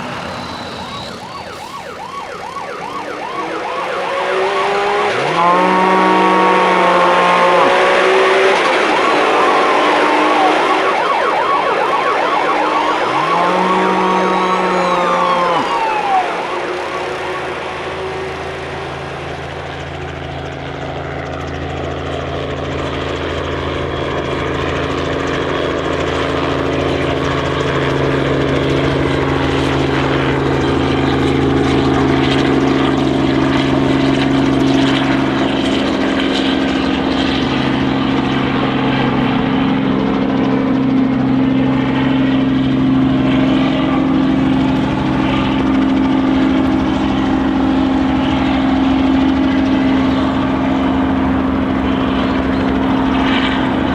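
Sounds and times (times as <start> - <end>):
large engine droning: 0.0 - 53.9.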